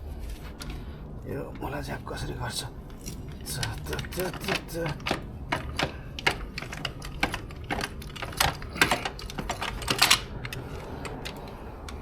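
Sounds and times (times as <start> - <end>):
car jack clicking: 3.0 - 12.0.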